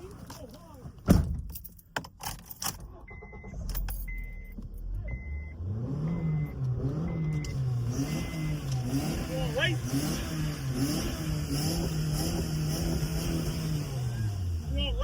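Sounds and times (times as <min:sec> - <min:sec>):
car warning chime beeping: 0:03.0 - 0:09.8
car engine running: 0:03.0 - 0:15.0.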